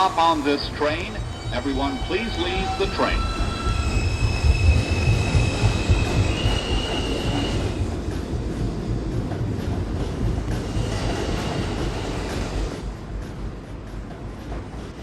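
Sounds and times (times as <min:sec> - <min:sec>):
high wheel squeal: 0:00.0 - 0:07.9
subway train rumbling: 0:00.0 - 0:15.0.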